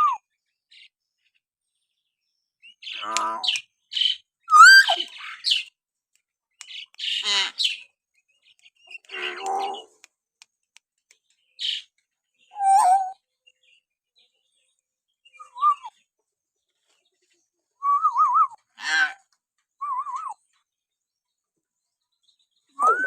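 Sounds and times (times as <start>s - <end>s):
harsh raspy bird calls: 2.8s - 5.7s, 6.6s - 8.0s, 8.8s - 10.1s, 18.7s - 19.3s
bird warbling whistles: 4.5s - 5.1s, 22.8s - 23.0s.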